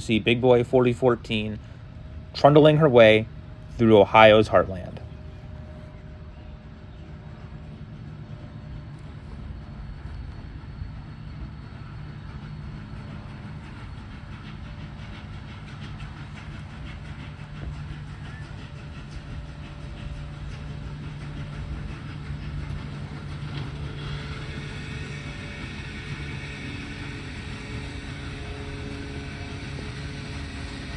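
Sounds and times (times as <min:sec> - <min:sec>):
train rumbling past: 0:00.0 - 0:30.9
wheels clicking over rails: 0:12.2 - 0:30.9.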